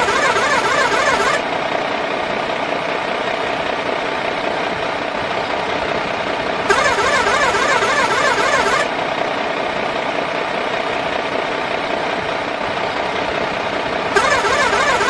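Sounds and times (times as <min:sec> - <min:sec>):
toy truck motor drone: 0:00.0 - 0:01.4, 0:06.7 - 0:08.9, 0:14.2 - 0:15.0
warbling whine: 0:00.0 - 0:01.4, 0:06.7 - 0:08.9.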